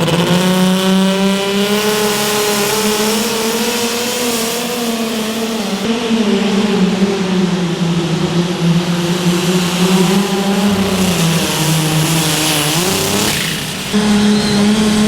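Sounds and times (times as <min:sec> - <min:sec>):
pulling vehicle engine straining: 0:08.2 - 0:15.0.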